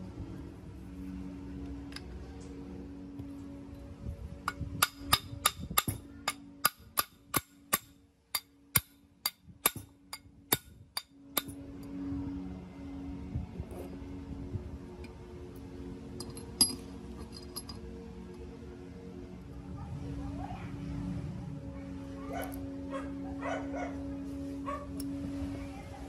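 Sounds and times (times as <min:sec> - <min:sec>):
hammer tapping on steel: 0:04.5 - 0:11.6.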